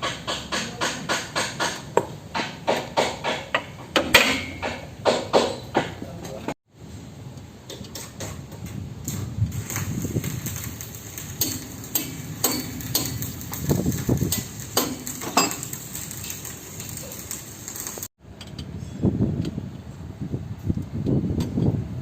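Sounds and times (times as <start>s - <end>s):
metal hand tools clinking: 11.2s - 18.0s.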